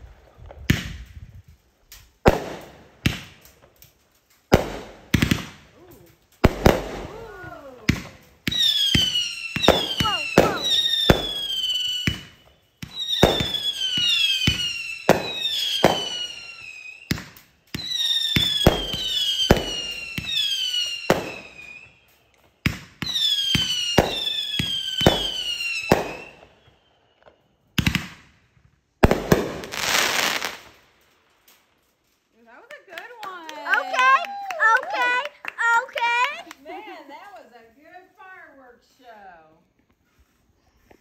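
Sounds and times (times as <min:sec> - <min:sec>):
firework sharp bangs: 0:02.2 - 0:03.4, 0:04.5 - 0:05.8, 0:06.4 - 0:16.4, 0:17.1 - 0:21.7, 0:22.6 - 0:26.4, 0:29.0 - 0:30.8
firework falling whistles: 0:06.5 - 0:28.2.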